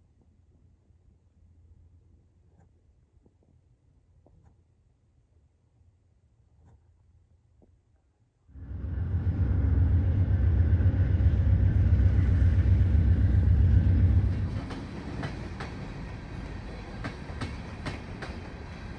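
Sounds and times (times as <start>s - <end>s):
train rumbling: 8.5s - 18.9s.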